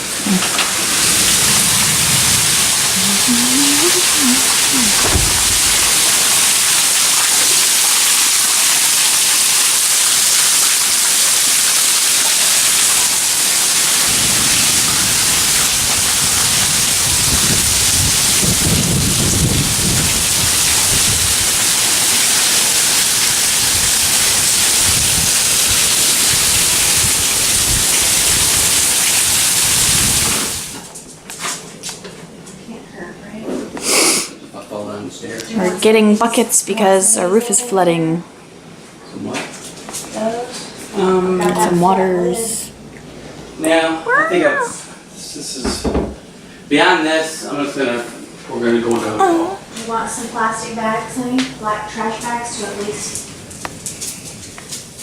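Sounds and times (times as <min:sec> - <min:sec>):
heavy rain pouring: 0:00.0 - 0:30.9
wind buffeting microphone: 0:01.0 - 0:07.0, 0:14.1 - 0:21.7, 0:23.6 - 0:30.7.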